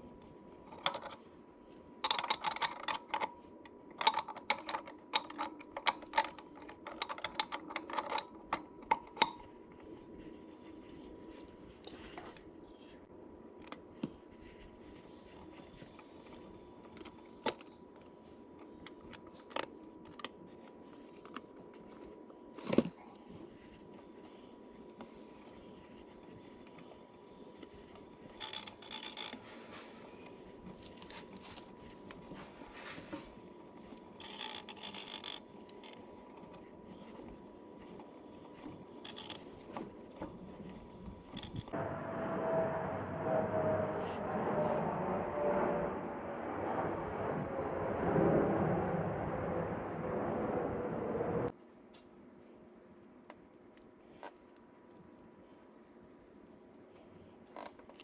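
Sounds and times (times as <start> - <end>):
scooter engine droning: 41.7 - 51.5.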